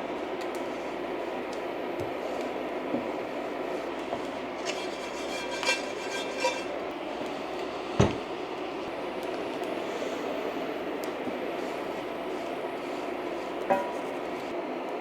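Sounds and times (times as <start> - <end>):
steady cooking hiss: 0.0 - 15.0
metal utensils clinking cookware: 4.6 - 6.8.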